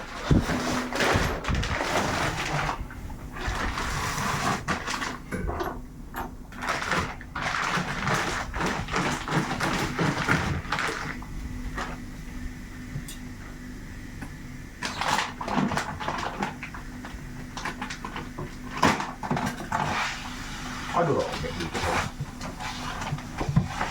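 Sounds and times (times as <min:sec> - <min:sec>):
plastic packaging rustling: 0:00.0 - 0:05.3, 0:06.5 - 0:12.1.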